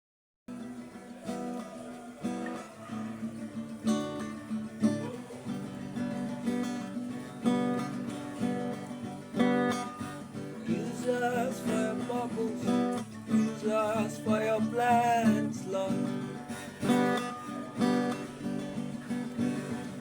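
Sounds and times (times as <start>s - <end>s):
acoustic guitar strumming: 0.5s - 20.0s
person singing: 0.6s - 6.4s, 10.6s - 20.0s.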